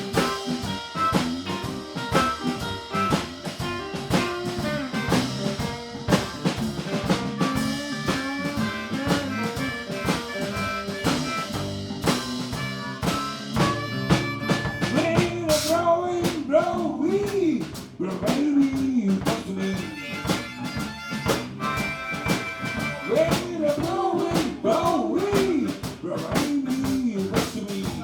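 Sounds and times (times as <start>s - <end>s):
bending lead guitar line: 0.0s - 16.3s, 19.5s - 24.8s
drum kit beat: 0.0s - 28.0s
live blues band playing: 0.0s - 28.0s.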